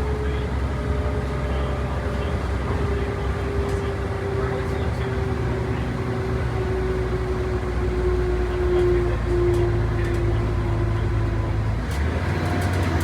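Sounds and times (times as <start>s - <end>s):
bus engine rumbling: 0.0s - 13.0s.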